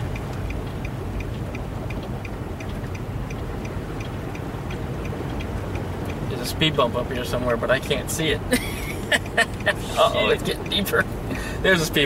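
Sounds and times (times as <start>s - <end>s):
car engine and road rumble: 0.0s - 12.0s
faint even ticking: 0.0s - 12.0s.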